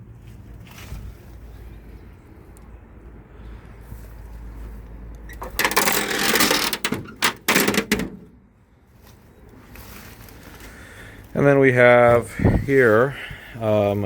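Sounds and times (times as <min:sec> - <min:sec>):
metal scraping and clattering: 0:05.3 - 0:08.4
short metal clanks: 0:05.3 - 0:08.4.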